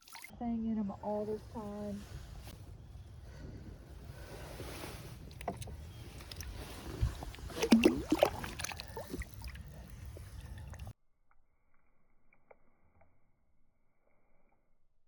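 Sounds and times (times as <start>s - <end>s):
rumble of wind and water: 0.3s - 10.9s.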